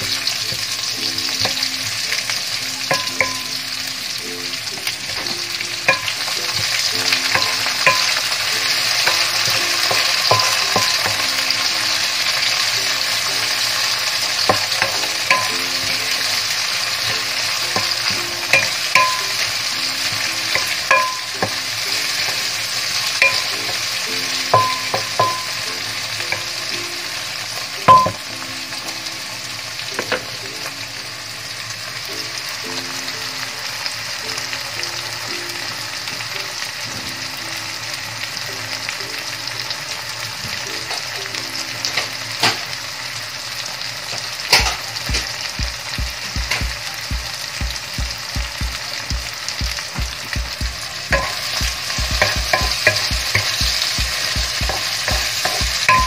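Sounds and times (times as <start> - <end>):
food sizzling in hot oil: 0.0 - 56.0
spatula knocking against pan: 2.9 - 3.5, 5.1 - 11.5, 14.4 - 16.2, 17.0 - 22.4, 23.2 - 25.6, 27.9 - 28.3, 44.5 - 56.0.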